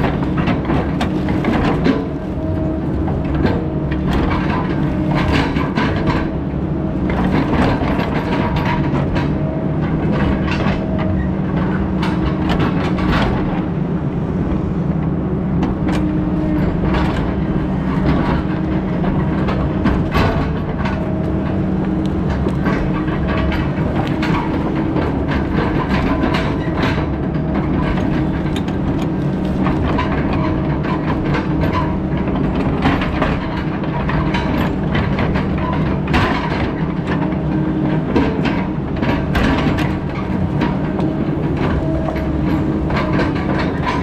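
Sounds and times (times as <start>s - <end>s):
heavy diesel machinery running: 0.0s - 44.0s.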